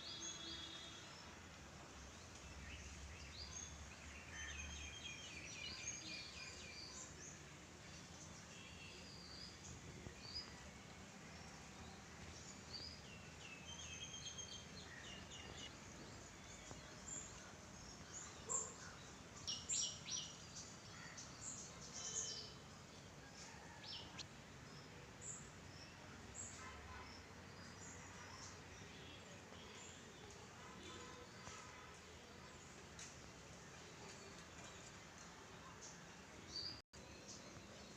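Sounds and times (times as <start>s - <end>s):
low background noise: 0.0s - 37.9s
birds chirping: 12.2s - 22.5s.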